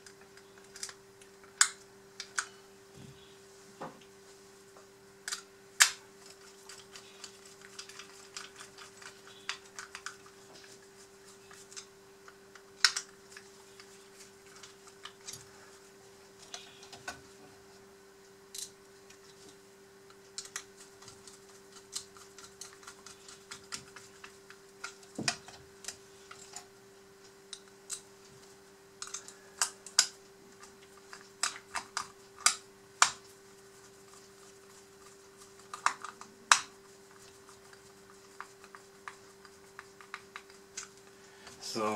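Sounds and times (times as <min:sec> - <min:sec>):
steady faint hum: 0:00.0 - 0:41.9
small metal parts clicking: 0:29.0 - 0:30.1.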